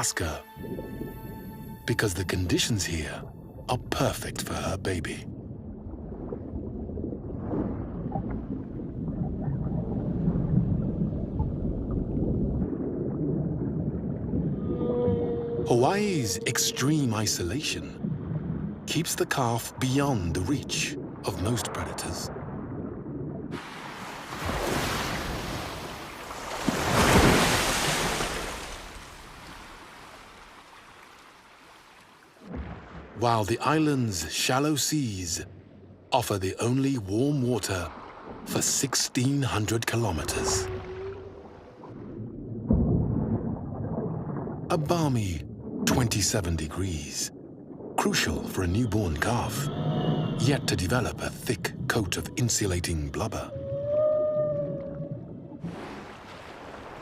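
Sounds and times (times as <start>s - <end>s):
underwater rumble: 2.5s - 27.6s, 32.4s - 33.2s, 40.0s - 57.0s
whale calls: 14.4s - 17.8s, 40.0s - 42.0s, 48.4s - 52.5s, 53.1s - 55.7s
ocean wave washing: 23.5s - 35.7s, 54.6s - 57.0s.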